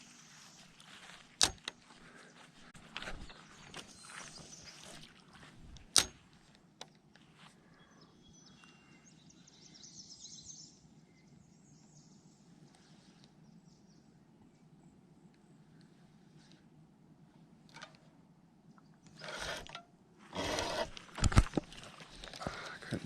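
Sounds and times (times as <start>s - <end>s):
birds chirping: 0.0s - 6.0s, 7.3s - 15.6s
low background noise: 0.0s - 23.0s
sharp click: 1.4s - 1.8s, 5.7s - 6.2s.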